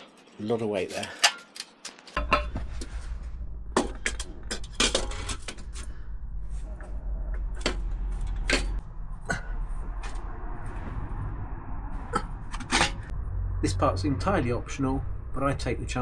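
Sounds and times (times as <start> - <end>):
metal parts knocking and clinking: 0.9 - 2.7, 3.8 - 5.9, 7.6 - 8.8
low steady hum: 2.2 - 16.0.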